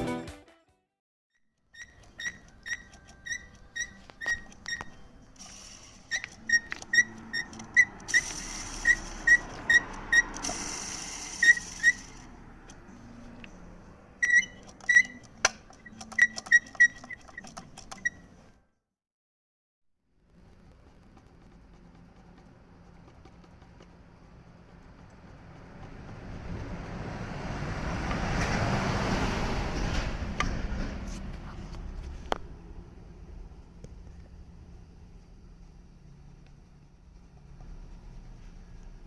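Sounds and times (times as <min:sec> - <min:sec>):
clutch bearing squeaking: 0:01.6 - 0:18.6, 0:20.6 - 0:28.4.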